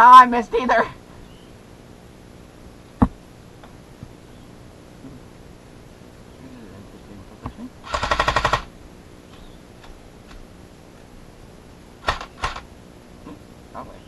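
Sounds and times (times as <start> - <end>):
airsoft gun firing: 7.8 - 8.7, 12.0 - 12.7.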